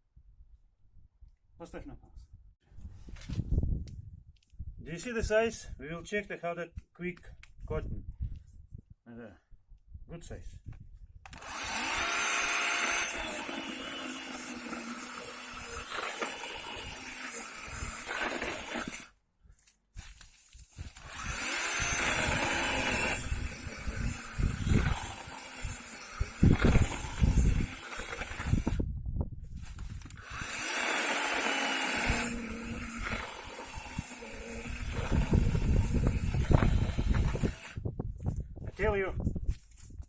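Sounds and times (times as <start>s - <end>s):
chainsaw cutting branch: 11.3s - 19.1s, 20.8s - 28.8s, 29.8s - 37.8s
electric chainsaw motor whining: 11.3s - 19.1s, 20.8s - 28.8s, 29.9s - 37.8s.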